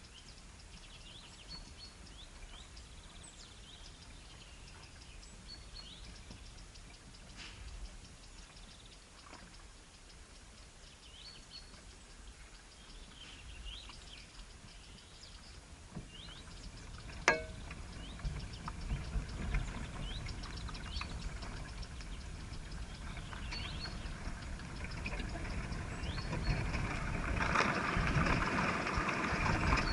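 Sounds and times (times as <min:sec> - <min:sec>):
small birds chirping: 0:00.0 - 0:26.8
low rumble: 0:16.2 - 0:29.9.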